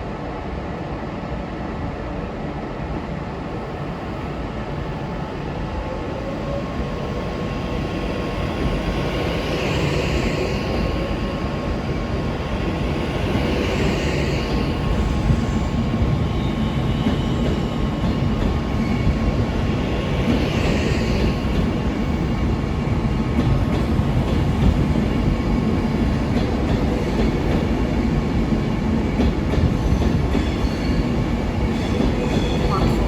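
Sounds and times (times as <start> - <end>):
train rumbling: 0.0 - 33.0.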